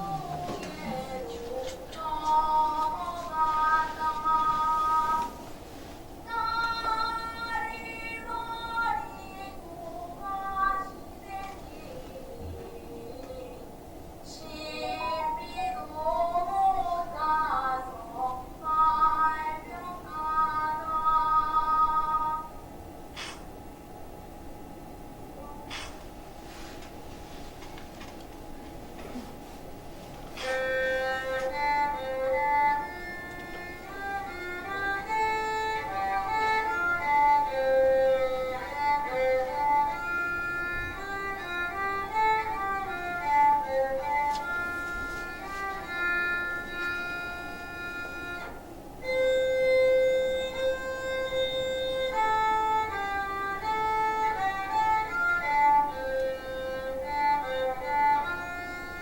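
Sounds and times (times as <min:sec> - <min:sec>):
solo violin slow melody: 0:30.4 - 0:59.0.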